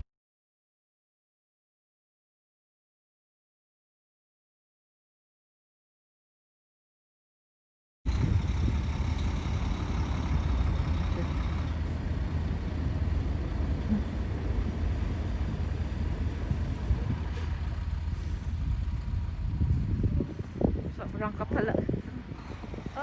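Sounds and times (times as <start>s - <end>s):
vehicle engine idling: 8.1s - 23.0s.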